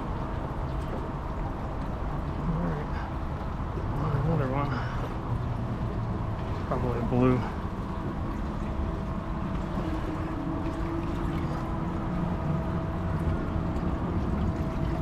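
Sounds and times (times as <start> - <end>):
motorboat engine rumbling: 0.0 - 15.0
water noise: 0.0 - 15.0
wind: 0.0 - 15.0.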